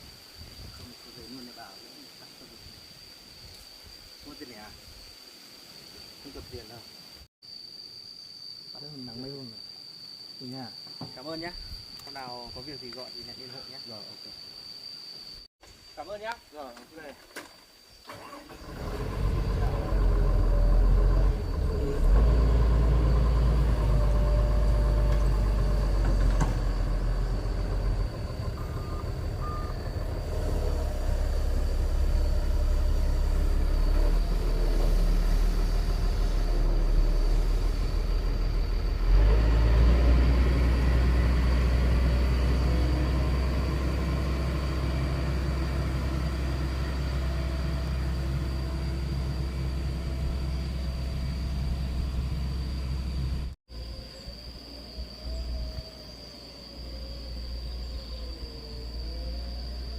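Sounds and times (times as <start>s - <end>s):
vehicle engine running: 18.6s - 53.6s.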